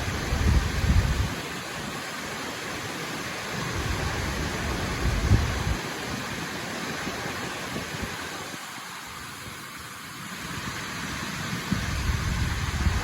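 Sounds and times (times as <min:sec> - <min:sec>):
wind rumble on microphone: 0:00.0 - 0:02.0, 0:03.5 - 0:08.7, 0:10.4 - 0:13.0
waterfall rushing: 0:00.0 - 0:13.0.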